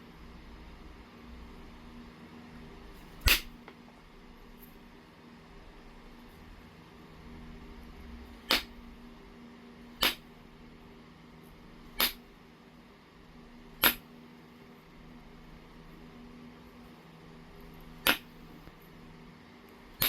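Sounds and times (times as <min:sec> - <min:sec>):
stone flakes knapped clicks: 0:12.0 - 0:12.2, 0:13.8 - 0:14.0.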